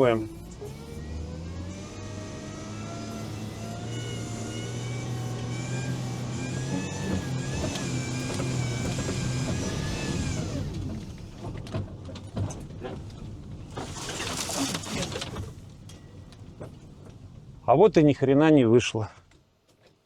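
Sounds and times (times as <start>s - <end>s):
all-terrain vehicle engine revving: 0.0s - 11.5s
vehicle knocks and clatter: 6.3s - 18.1s.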